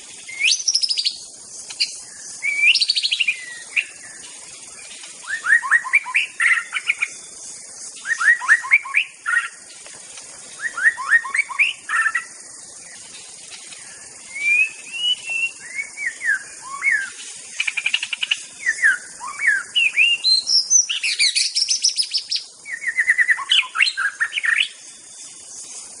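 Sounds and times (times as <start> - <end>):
faint high hiss: 0.0 - 26.0
songbird singing whistled phrases: 0.2 - 4.3, 5.2 - 7.3, 7.9 - 9.6, 10.6 - 12.4, 13.9 - 25.1.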